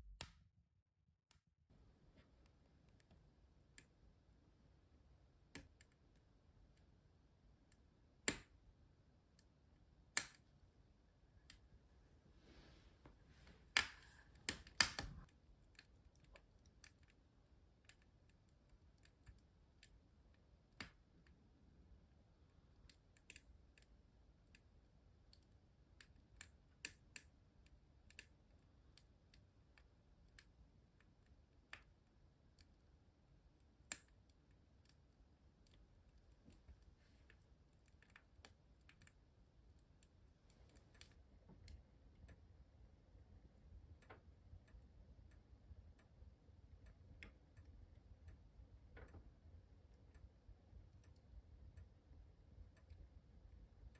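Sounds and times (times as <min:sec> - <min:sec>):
wood fire crackling and popping: 0:13.5 - 0:17.0.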